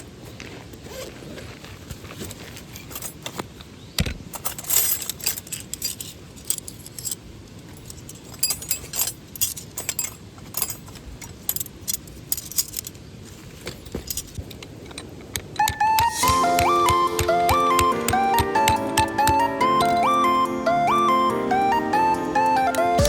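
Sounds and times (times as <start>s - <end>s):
low background hiss: 0.0s - 23.0s
small metal objects clinking: 4.0s - 16.3s.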